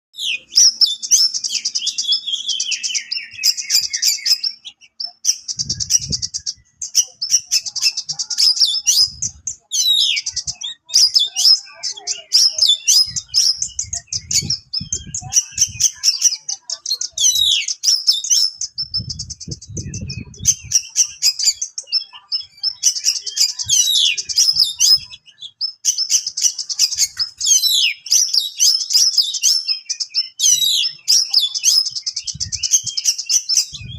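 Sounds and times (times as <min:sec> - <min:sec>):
bird singing rasping trills: 0:00.1 - 0:33.9
dull low thumps: 0:18.8 - 0:20.7.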